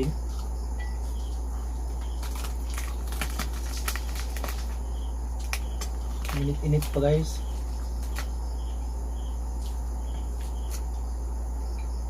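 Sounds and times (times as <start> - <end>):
steady low hum: 0.0 - 12.0
crunching crispy pork skin: 2.0 - 8.4.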